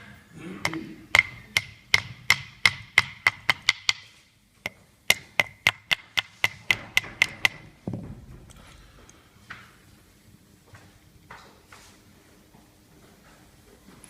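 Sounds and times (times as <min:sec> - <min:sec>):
hand tools clicking on metal: 0:00.6 - 0:04.0.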